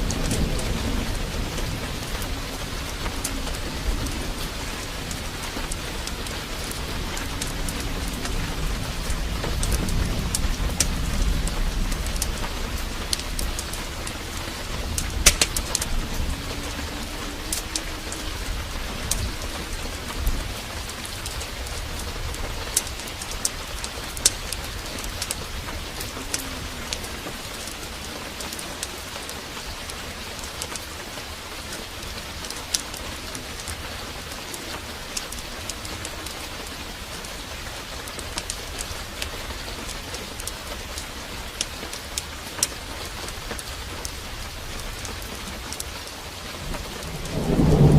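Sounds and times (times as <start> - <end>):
low thunder rumble: 0.0 - 30.5, 43.0 - 47.9
heavy rain downpour: 0.0 - 47.9
sharp pops and crackles: 9.0 - 18.3.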